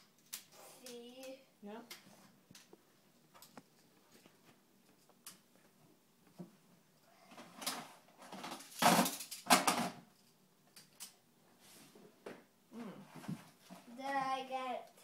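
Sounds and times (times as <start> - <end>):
plastic magnetic pieces clattering: 7.6 - 11.1.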